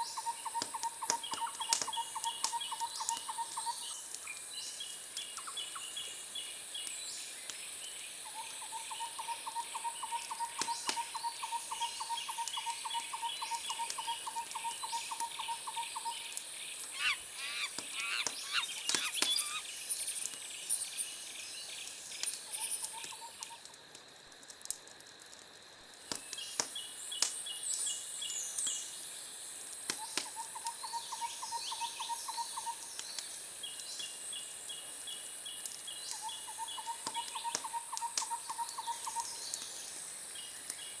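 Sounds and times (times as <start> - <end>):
high insect hiss: 0.0 - 41.0
birds chirping and calling: 16.8 - 19.7
sharp clicks: 17.6 - 19.6.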